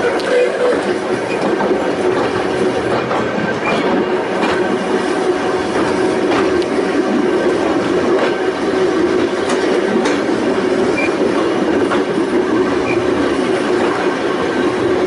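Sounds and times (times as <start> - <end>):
electric railway car humming: 0.0 - 15.0
wheels clicking over rail joints: 9.3 - 12.2.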